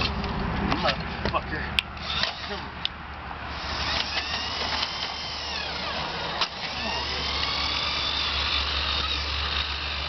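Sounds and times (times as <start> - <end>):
drain snake motor whine: 3.5 - 10.0.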